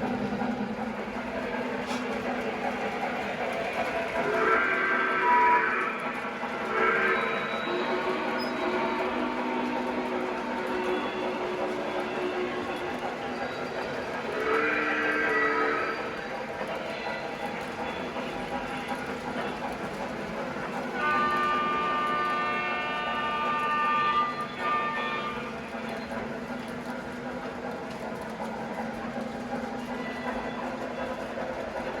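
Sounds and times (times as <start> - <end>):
locomotive running: 0.0 - 32.0
train horn blowing: 3.7 - 13.2, 14.0 - 16.2, 20.6 - 25.8.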